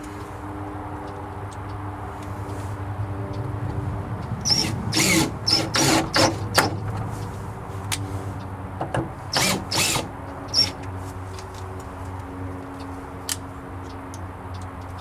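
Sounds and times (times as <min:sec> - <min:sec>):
power drill driving screws into wood: 0:04.4 - 0:06.8, 0:09.3 - 0:10.8.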